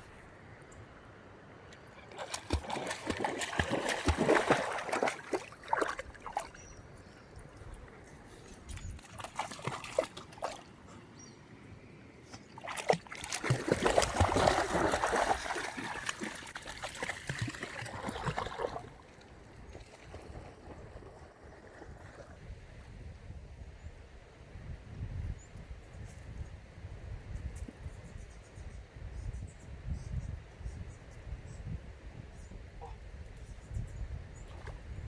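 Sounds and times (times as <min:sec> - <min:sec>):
water splashing in river: 0:02.0 - 0:06.7, 0:09.0 - 0:10.9, 0:12.4 - 0:22.4.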